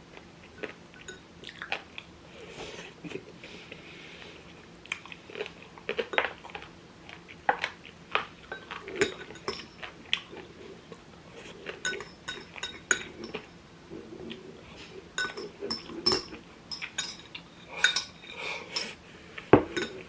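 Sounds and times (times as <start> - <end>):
chewing: 0.0 - 20.0
utensils clinking on dishes: 8.4 - 9.9, 11.8 - 13.5, 15.2 - 19.0, 19.6 - 20.0.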